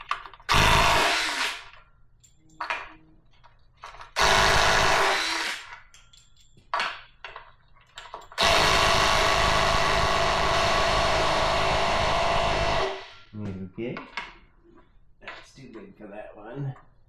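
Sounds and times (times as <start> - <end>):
handheld power tool running: 0.5 - 1.7, 4.2 - 5.7, 8.4 - 13.2.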